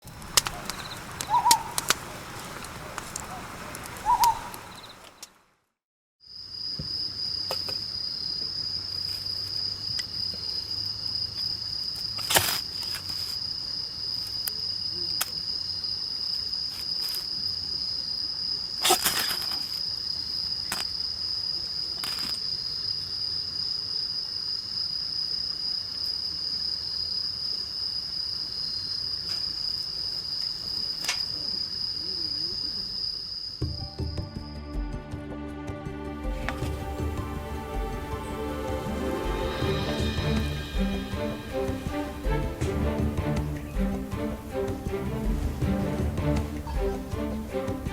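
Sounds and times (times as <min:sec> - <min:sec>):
sharp pops: 0:00.0 - 0:05.4
steady high-pitched tone: 0:36.2 - 0:44.0.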